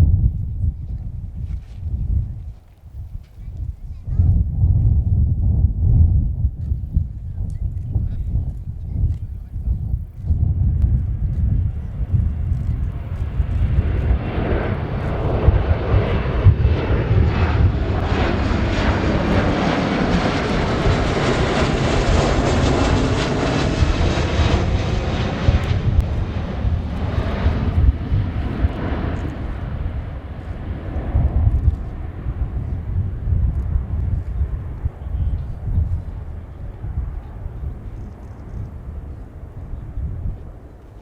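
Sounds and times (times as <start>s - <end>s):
jet aircraft flying by: 10.0s - 41.0s.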